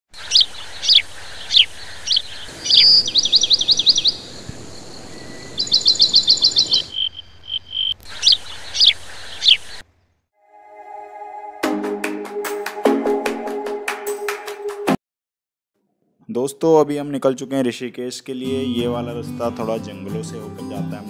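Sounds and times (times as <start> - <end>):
birds chirping and trilling: 0.1 - 9.8
bird whistle: 2.5 - 9.6.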